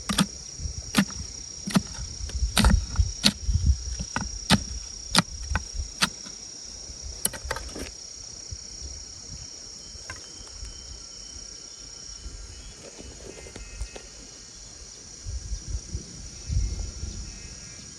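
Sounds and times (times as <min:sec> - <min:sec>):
sharp knocks: 0:00.0 - 0:00.3, 0:01.0 - 0:03.4, 0:04.0 - 0:06.3
insect high-pitched drone: 0:00.0 - 0:17.9.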